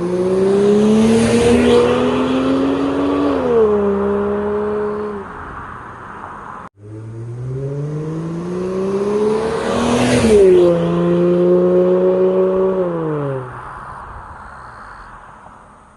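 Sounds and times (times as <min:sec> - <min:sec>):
car accelerating past: 0:00.0 - 0:05.3, 0:06.8 - 0:13.7.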